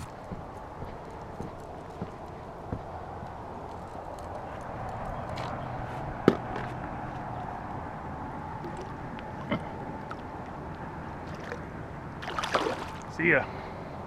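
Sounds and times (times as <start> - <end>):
water rushing from spillway: 12.2 - 13.2.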